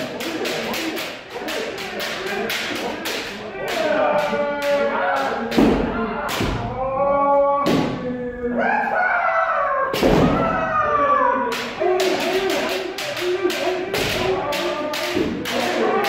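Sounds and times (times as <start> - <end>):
bamboo swords striking: 0.0 - 6.6, 10.0 - 10.4, 11.5 - 16.0
people shouting: 0.0 - 16.0.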